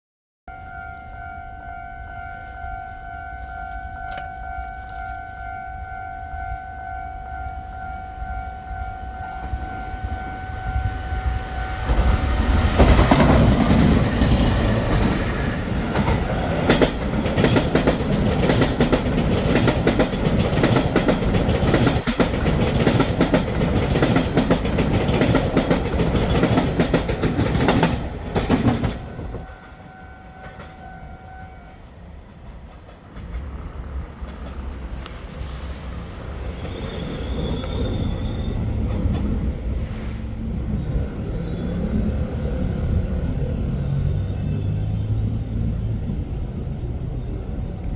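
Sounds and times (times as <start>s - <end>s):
train passing at speed: 0.5s - 47.9s
wheels clattering over rail joints: 11.9s - 29.8s.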